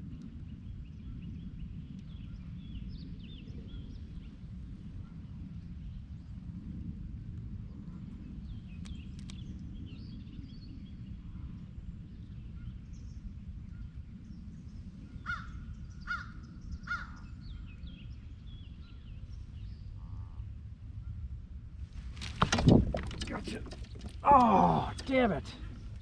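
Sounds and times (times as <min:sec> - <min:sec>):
small birds chirping: 0:08.2 - 0:20.4, 0:22.3 - 0:26.0.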